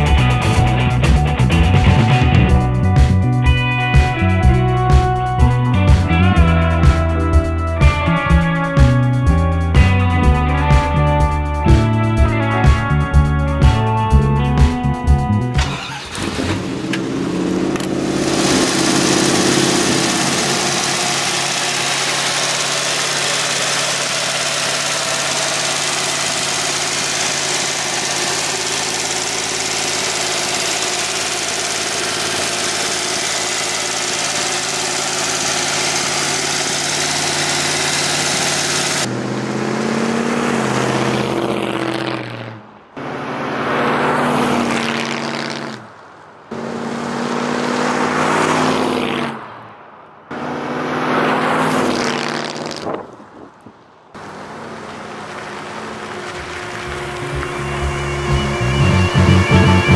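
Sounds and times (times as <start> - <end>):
car engine idling and revving: 0.0 - 59.9
car accelerating past: 34.1 - 53.2, 54.2 - 59.9.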